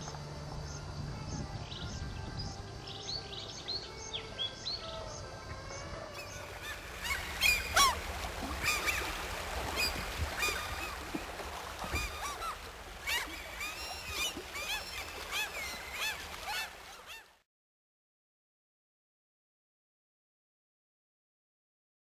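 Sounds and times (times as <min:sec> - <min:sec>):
birds calling: 0:05.8 - 0:17.3.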